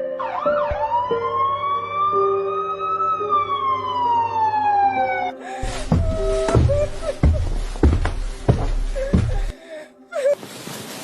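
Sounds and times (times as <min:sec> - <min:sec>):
background music notes: 0:00.0 - 0:10.1
long wailing tone: 0:00.2 - 0:06.9.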